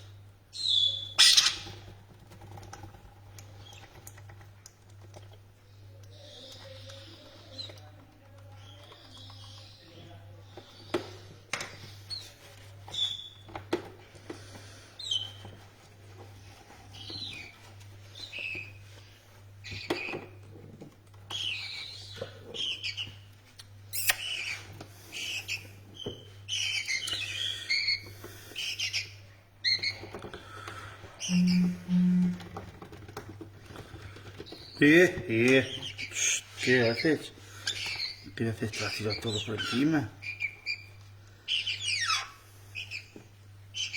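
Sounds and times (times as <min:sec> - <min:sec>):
low electrical hum: 0:00.0 - 0:43.9
parrots chirping and squawking: 0:00.6 - 0:01.9, 0:23.9 - 0:30.2, 0:35.6 - 0:43.9.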